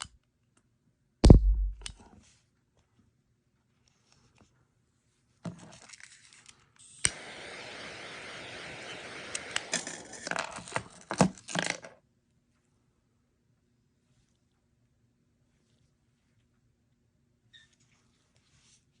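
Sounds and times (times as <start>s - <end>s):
butane gas hissing: 7.0s - 10.3s.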